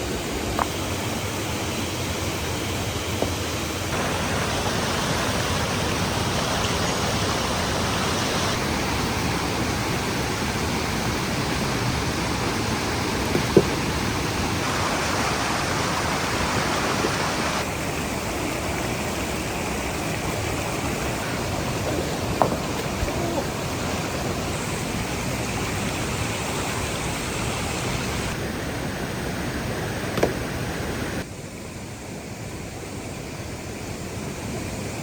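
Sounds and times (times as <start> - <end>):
waterfall rushing: 0.0 - 31.3.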